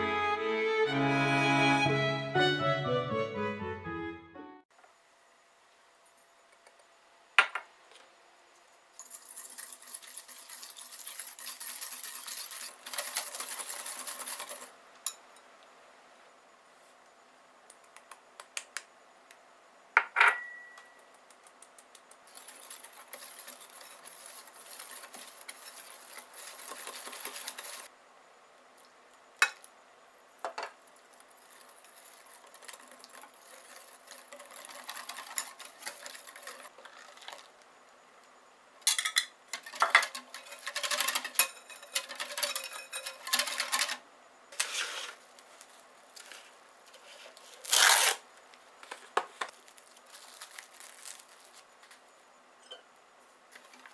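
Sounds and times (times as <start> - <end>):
fast stirring and scraping: 9.0 - 14.8, 22.2 - 27.9, 31.0 - 37.6, 39.5 - 44.0
utensil clinking against bowl: 38.9 - 44.0.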